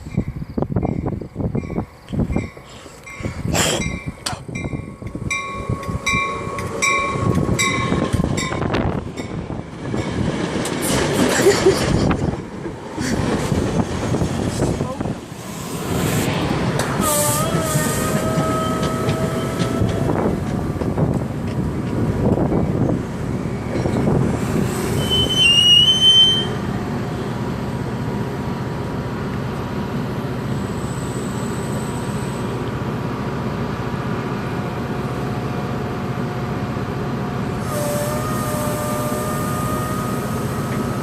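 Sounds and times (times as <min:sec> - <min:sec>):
locomotive engine rumble: 0:00.0 - 0:41.0
train braking to a stop: 0:15.4 - 0:21.1, 0:23.5 - 0:27.3, 0:30.4 - 0:32.7, 0:37.5 - 0:41.0
wheel and brake squeal: 0:17.0 - 0:20.0, 0:24.9 - 0:26.7.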